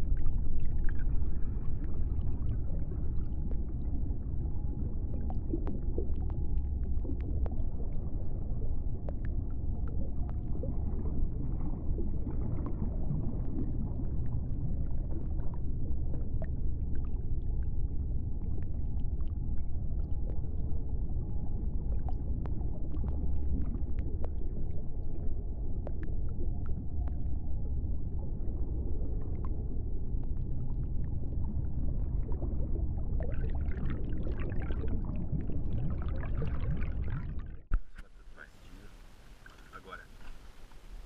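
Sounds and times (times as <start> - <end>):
faint steady tone: 0.0 - 41.0
underwater low rumble: 0.0 - 41.0.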